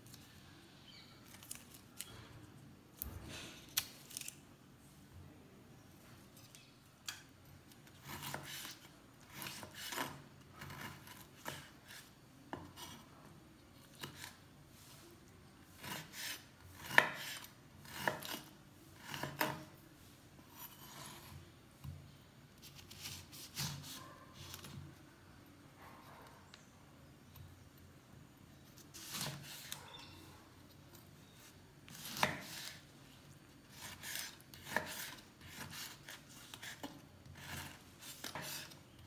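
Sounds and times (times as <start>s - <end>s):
knife cutting through rind: 3.7s - 4.4s, 15.8s - 19.7s, 28.8s - 30.0s, 31.9s - 32.8s, 33.7s - 38.8s.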